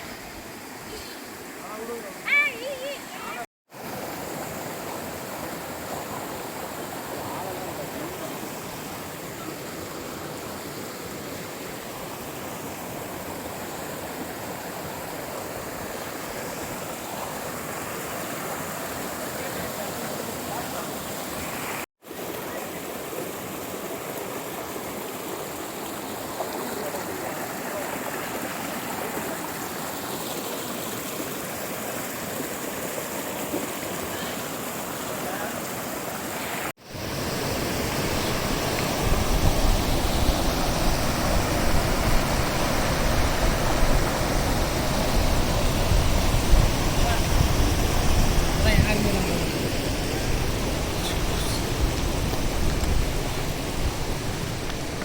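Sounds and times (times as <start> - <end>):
rushing stream water: 0.0 - 55.0.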